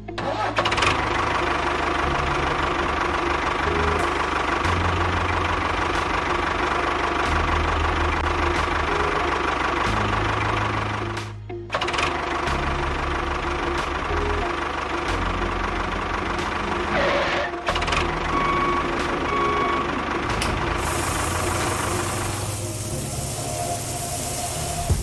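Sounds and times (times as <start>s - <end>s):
hiss: 20.8s - 25.0s.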